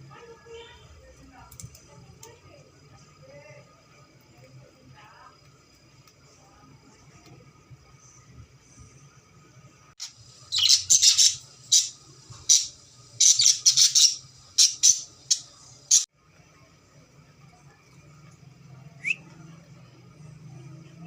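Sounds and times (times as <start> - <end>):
parrot squawking: 10.0 - 16.0.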